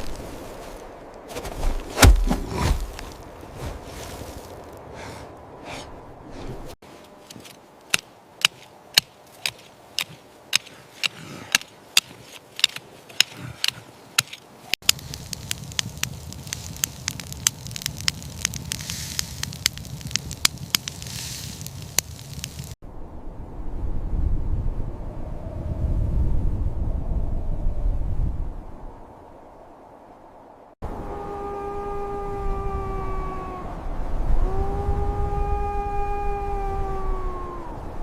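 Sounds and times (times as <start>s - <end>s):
sharp crackling pops: 7.3s - 22.8s
faint hiss: 14.9s - 22.8s
low rumble: 14.9s - 31.1s.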